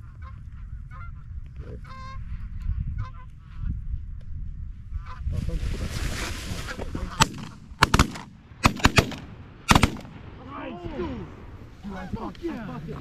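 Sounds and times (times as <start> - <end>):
geese honking: 0.0 - 2.3, 3.0 - 3.6
shotgun blasts: 7.2 - 10.4.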